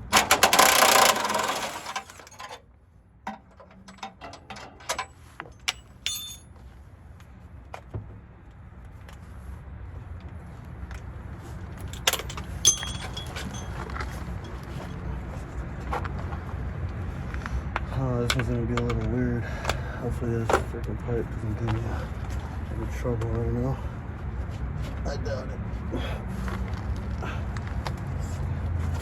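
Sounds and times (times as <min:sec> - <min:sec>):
metal tools clinking: 0:00.2 - 0:02.6, 0:03.3 - 0:06.5, 0:11.8 - 0:15.0.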